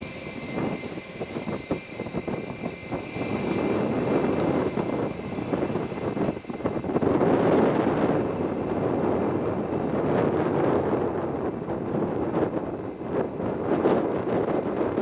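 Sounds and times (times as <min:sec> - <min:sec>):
jet engines during takeoff: 0:00.0 - 0:15.0.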